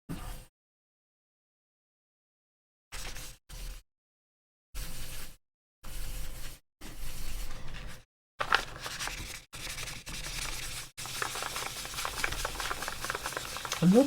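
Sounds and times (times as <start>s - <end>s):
sandpaper rubbing on plastic: 9.1s - 14.0s.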